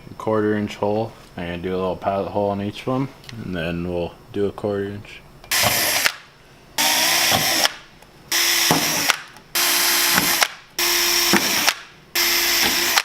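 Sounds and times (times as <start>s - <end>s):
cordless drill bursts: 5.5s - 6.2s, 6.8s - 13.0s.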